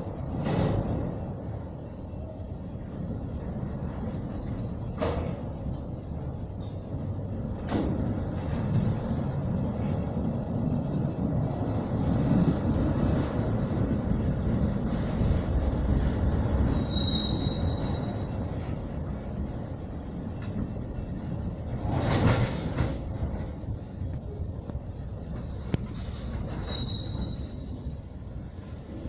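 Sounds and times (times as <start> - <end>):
train knocks: 0.0 - 1.8, 3.4 - 29.0
steel wheels rumbling on rails: 0.0 - 29.0
wheel squeal: 16.5 - 18.7, 25.9 - 28.0.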